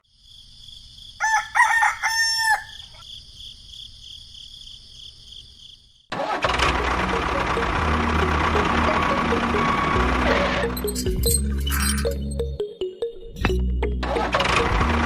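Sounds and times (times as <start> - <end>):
insects chirping: 0.0 - 6.1
rooster crowing: 1.2 - 3.0.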